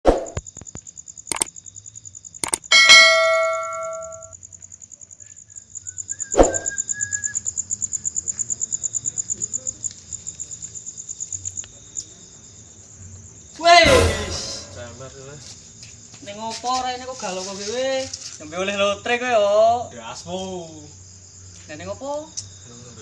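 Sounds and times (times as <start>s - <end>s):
sharp clicks: 1.3s - 1.5s, 2.4s - 3.1s
metallic ding: 2.4s - 4.3s, 13.8s - 15.0s.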